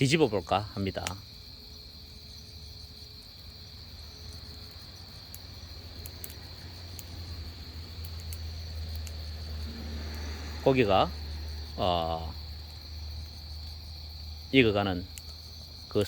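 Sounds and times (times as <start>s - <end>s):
crickets trilling: 0.0s - 16.0s
faint sharp crackles: 2.0s - 13.8s, 14.8s - 16.0s.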